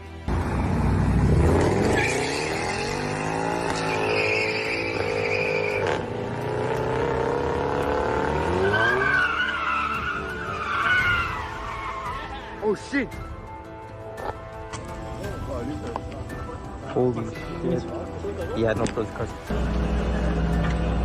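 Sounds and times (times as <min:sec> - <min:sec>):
car tyres squealing: 0:01.5 - 0:06.2, 0:07.0 - 0:12.6.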